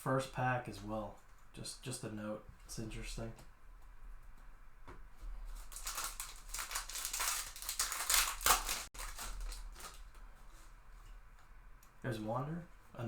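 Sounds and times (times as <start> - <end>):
wrapper tearing and crinkling: 5.6 - 10.1.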